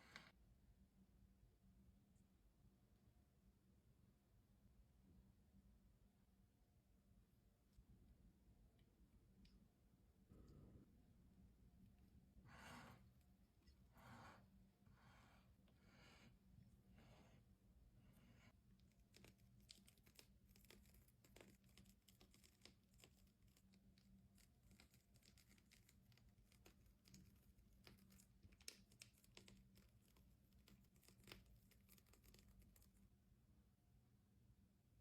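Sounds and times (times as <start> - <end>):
faint clicks and crinkling: 18.4 - 33.2.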